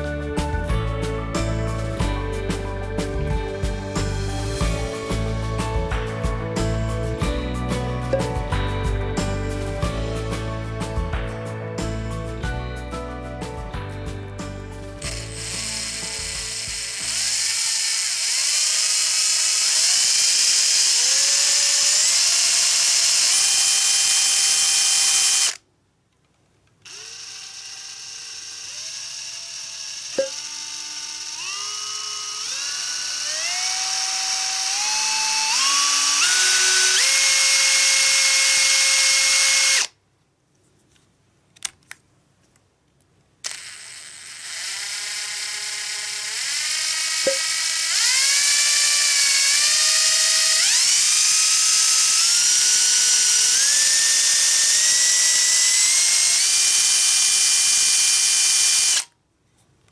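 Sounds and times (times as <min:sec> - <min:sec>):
cordless drill motor whining: 0:15.0 - 0:25.6, 0:26.9 - 0:39.9, 0:43.4 - 0:59.1
clicks: 0:41.0 - 0:43.7.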